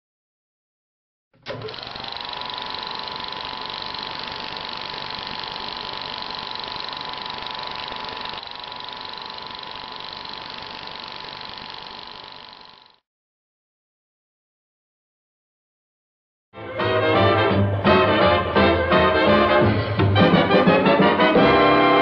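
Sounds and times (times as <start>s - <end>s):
machine whining with hiss: 1.5s - 13.0s.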